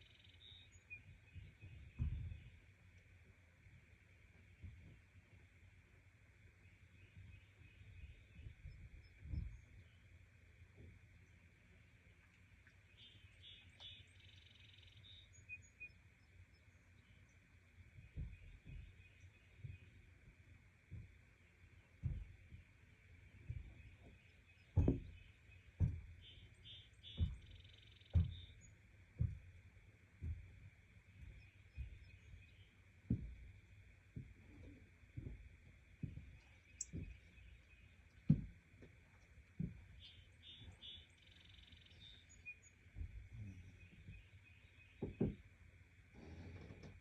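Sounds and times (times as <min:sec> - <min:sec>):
bird calls: 0:00.0 - 0:02.7, 0:06.6 - 0:10.2, 0:12.2 - 0:29.6, 0:30.2 - 0:45.5
dull low thumps: 0:00.2 - 0:02.8, 0:07.0 - 0:10.0, 0:17.0 - 0:45.6.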